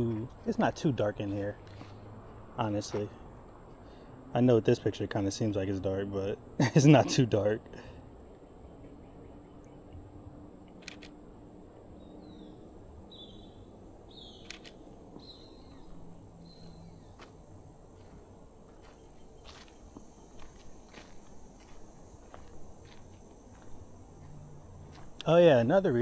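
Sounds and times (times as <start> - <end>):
sharp clicks: 10.8 - 11.2, 14.4 - 14.8
insect high-pitched trill: 12.0 - 26.0.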